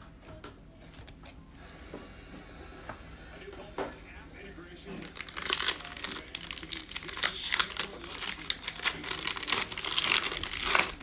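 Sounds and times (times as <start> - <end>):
plastic wrapper crinkling and tearing: 5.0 - 11.0.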